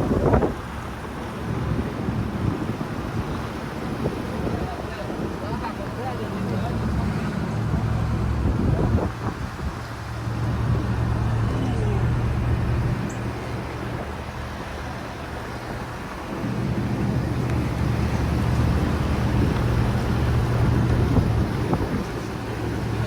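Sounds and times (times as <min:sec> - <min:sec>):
road noise: 0:00.0 - 0:23.0
car engine running: 0:06.0 - 0:23.0.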